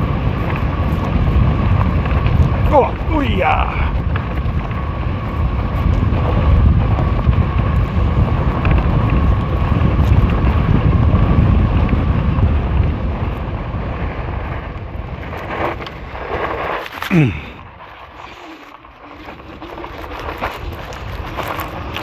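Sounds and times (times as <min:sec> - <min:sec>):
wind buffeting microphone: 0:00.0 - 0:16.3.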